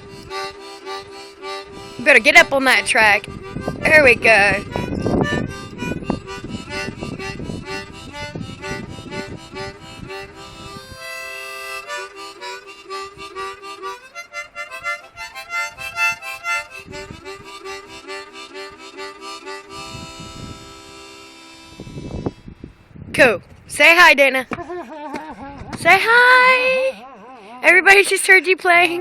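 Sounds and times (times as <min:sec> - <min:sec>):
harmonica playing blues: 0:00.0 - 0:22.6
wind buffeting microphone: 0:00.0 - 0:26.9.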